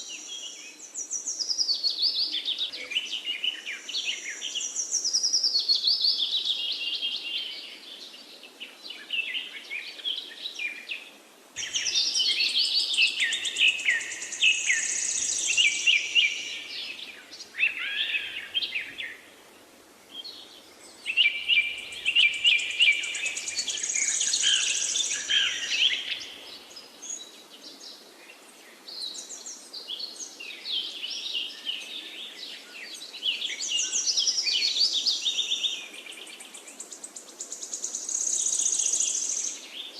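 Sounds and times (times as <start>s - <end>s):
faint background hiss: 0.0s - 39.9s
songbird singing: 0.0s - 39.9s.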